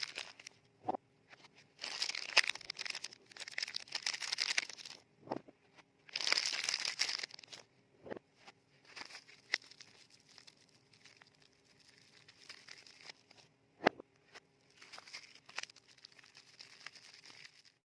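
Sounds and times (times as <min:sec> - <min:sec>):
paper wrapper crinkling: 0:00.0 - 0:00.6, 0:01.8 - 0:05.0, 0:06.1 - 0:07.6, 0:08.9 - 0:13.4, 0:14.7 - 0:17.8.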